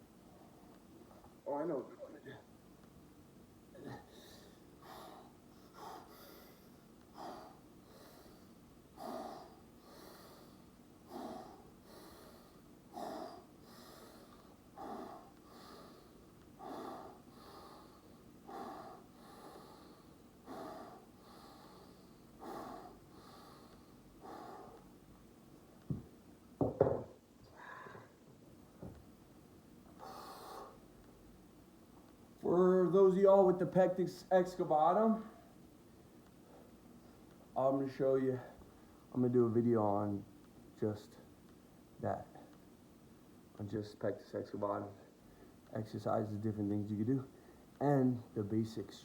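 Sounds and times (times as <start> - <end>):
man breathing rhythmically: 3.6 - 26.2, 27.5 - 28.3, 29.8 - 32.4, 35.2 - 37.5, 45.1 - 45.7, 47.3 - 47.8.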